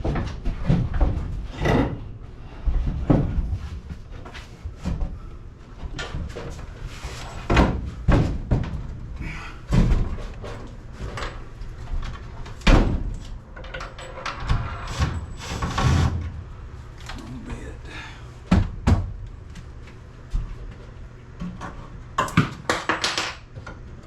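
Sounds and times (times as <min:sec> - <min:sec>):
knocks and bangs on a door: 0:07.5 - 0:08.8.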